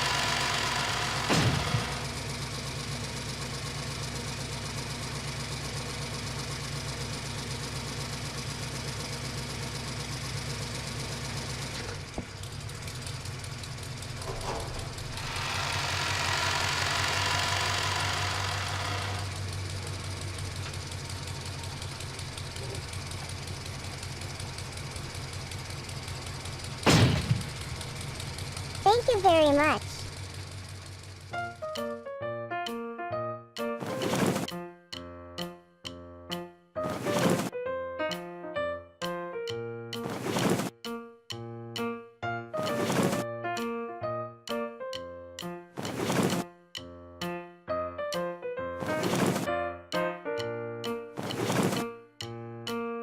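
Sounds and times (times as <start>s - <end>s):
toy vehicle engine-like hum: 0.0s - 32.0s.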